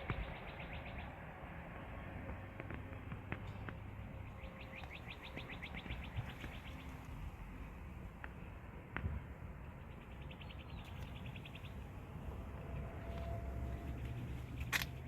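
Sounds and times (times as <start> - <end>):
low background rumble: 0.0 - 15.0
bird trilling: 4.4 - 6.9.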